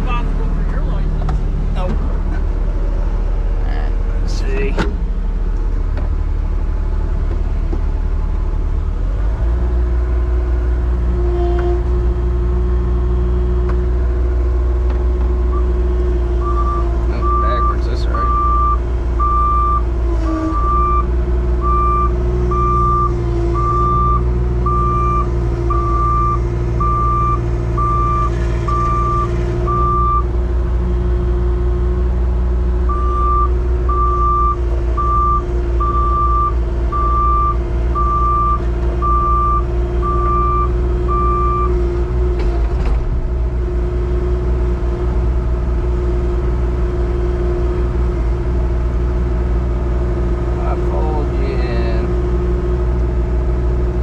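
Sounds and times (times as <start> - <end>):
engine running: 0.0 - 54.0
backup alarm beeping: 16.4 - 19.8, 20.5 - 30.3, 32.9 - 41.8.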